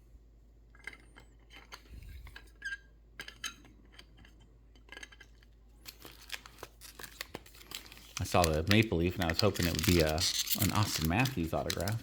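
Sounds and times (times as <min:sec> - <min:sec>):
trading cards being handled: 0:05.8 - 0:12.0.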